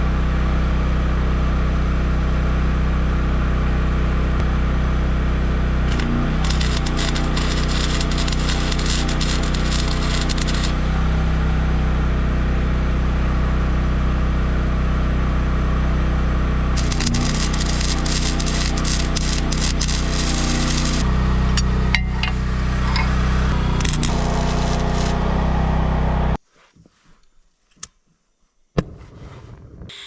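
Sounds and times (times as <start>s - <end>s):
steady engine hum: 0.0s - 26.4s
welding arc crackling: 5.9s - 11.0s, 16.8s - 25.3s.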